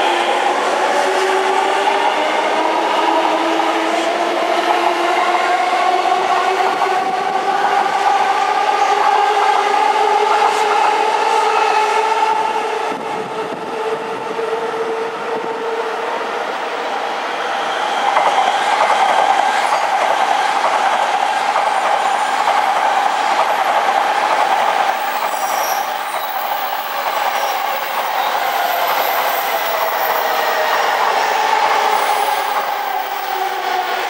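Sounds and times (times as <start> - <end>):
commuter train passing: 0.0 - 34.0
train whining past: 0.0 - 34.0
rush of wheels on rail: 16.6 - 34.0.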